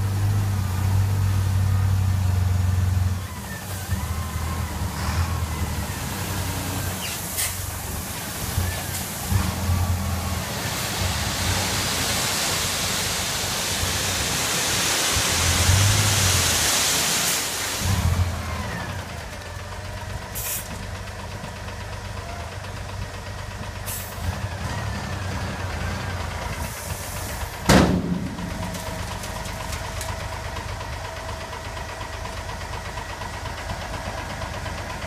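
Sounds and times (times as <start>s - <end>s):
diesel engine running: 17.7s - 35.0s
sharp bang: 27.7s - 28.8s.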